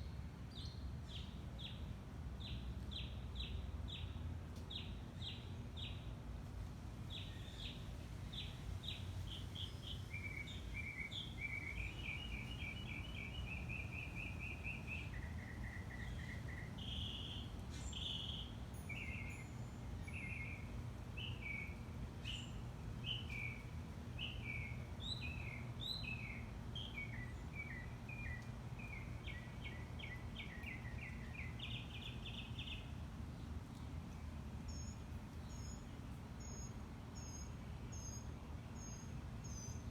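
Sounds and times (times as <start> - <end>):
birds chirping and trilling: 7.1 - 32.9.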